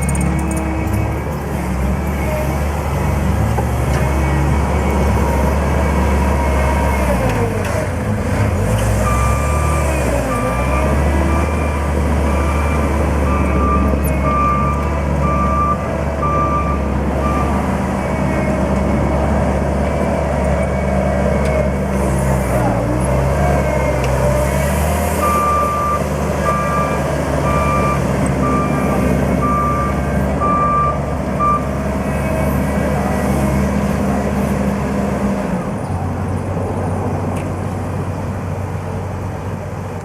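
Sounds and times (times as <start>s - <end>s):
loader engine running: 0.0s - 40.0s
reversing alarm beeping: 9.0s - 18.3s, 25.2s - 31.7s.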